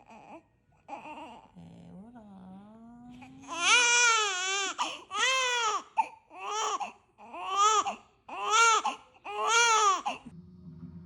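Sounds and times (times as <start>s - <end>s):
newborn baby crying: 0.0s - 1.5s, 3.4s - 10.3s.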